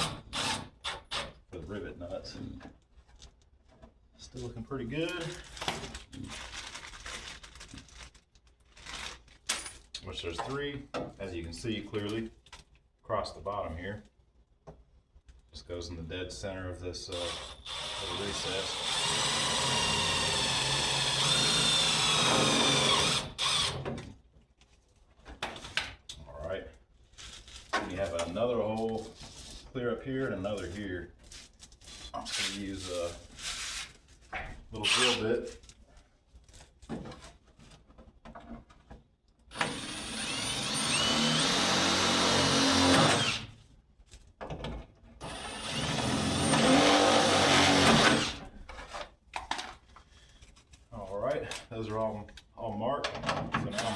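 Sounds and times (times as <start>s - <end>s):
power drill drilling plastic: 17.2s - 23.8s, 39.5s - 43.5s, 45.2s - 48.4s.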